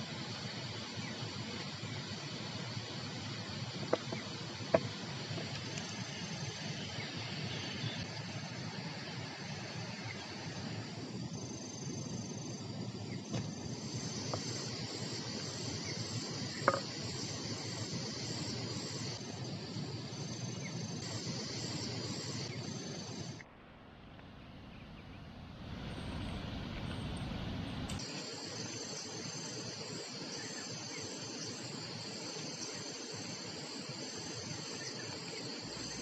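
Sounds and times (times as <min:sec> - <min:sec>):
low rumbling noise: 0:07.0 - 0:28.0
high-pitched insect buzzing: 0:11.4 - 0:23.4, 0:28.0 - 0:36.0.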